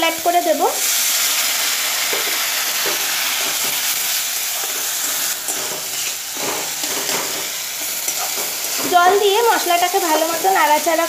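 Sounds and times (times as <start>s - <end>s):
sauce sizzling in hot oil: 0.0s - 11.0s
metal spatula scraping and stirring: 2.0s - 9.4s.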